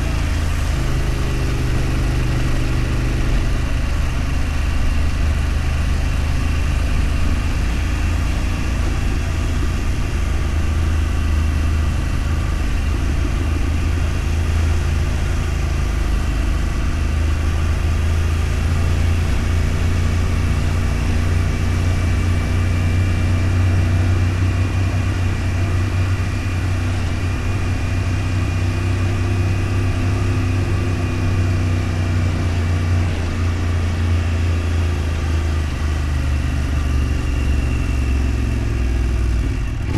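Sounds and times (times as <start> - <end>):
road noise: 0.0 - 39.9
vehicle engine humming: 0.0 - 39.9.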